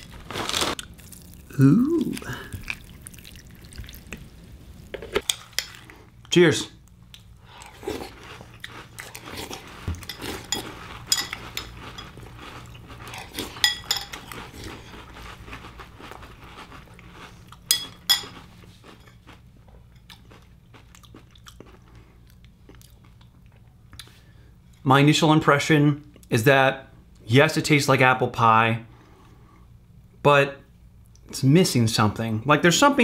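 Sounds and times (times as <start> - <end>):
person chewing crunchy cereal: 0.0 - 6.3, 7.1 - 23.7.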